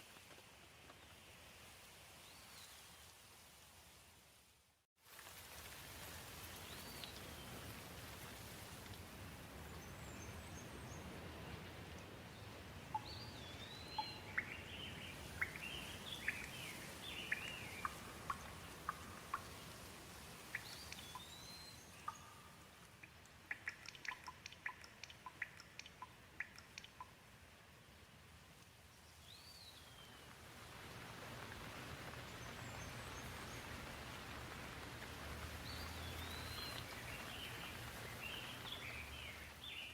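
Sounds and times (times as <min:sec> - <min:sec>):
gentle rain hiss: 0:00.0 - 0:39.9
sharp ticks: 0:23.0 - 0:27.2
birds chirping: 0:35.6 - 0:39.9.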